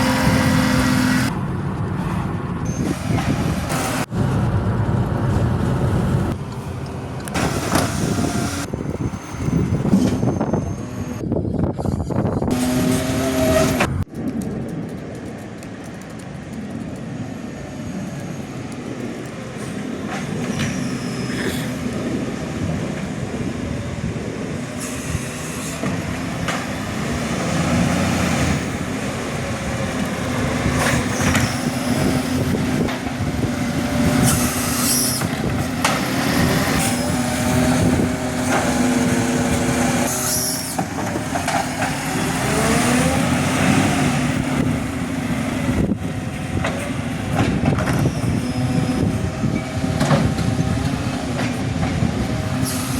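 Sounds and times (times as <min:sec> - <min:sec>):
garbage truck diesel engine: 0:00.0 - 0:52.9
short sharp air hisses: 0:52.6 - 0:52.9.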